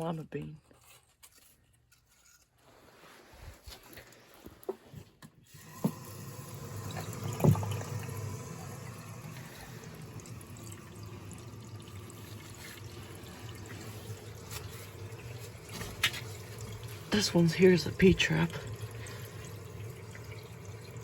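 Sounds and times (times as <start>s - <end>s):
water running: 5.5s - 21.0s.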